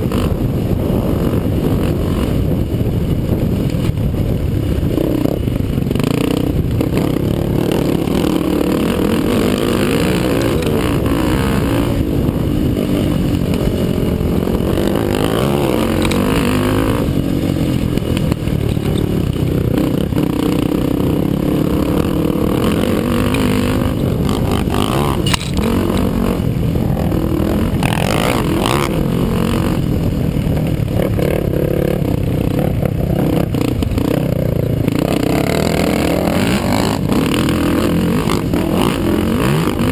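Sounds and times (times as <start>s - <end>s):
quad engine revving: 4.9s - 39.9s.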